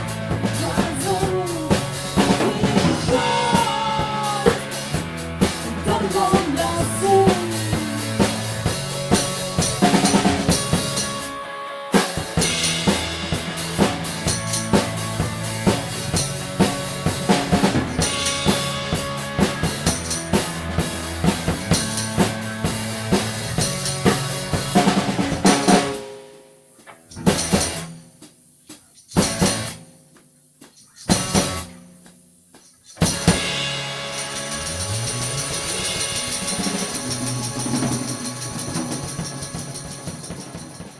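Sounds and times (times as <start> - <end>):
drum kit steady beat: 0.0 - 40.9
instrumental rock band: 0.0 - 40.9
band accented hits: 33.0 - 40.9.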